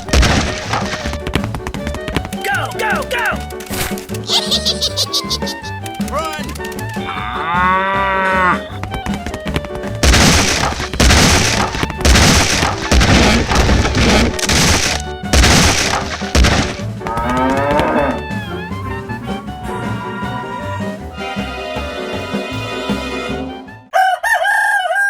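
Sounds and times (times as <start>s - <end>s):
loud noisy chunks of sound: 0.0s - 1.6s, 10.0s - 17.0s
background music: 0.0s - 24.0s
cow mooing: 7.0s - 8.8s, 17.0s - 21.1s.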